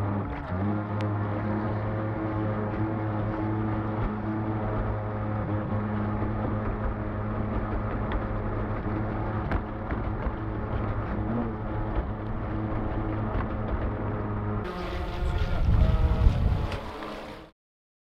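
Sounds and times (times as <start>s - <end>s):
electric boat motor hum: 0.0s - 17.5s.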